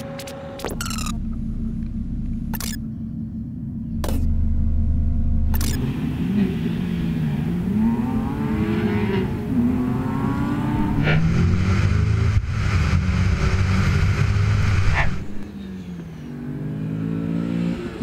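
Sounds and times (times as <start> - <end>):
sharp clicks: 1.8 - 2.8, 5.5 - 5.8
car engine accelerating hard: 3.8 - 18.0.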